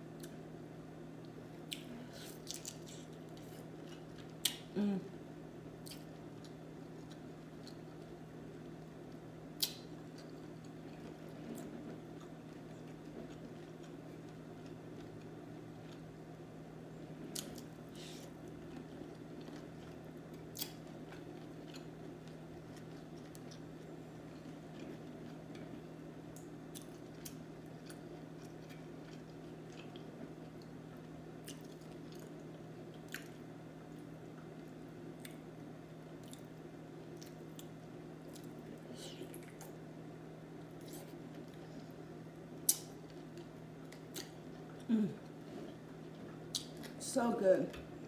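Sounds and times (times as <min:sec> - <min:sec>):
steady low hum: 0:00.0 - 0:48.0
wet chewing of seafood: 0:17.3 - 0:33.4
sharp mouth clicks and smacks: 0:46.5 - 0:46.9.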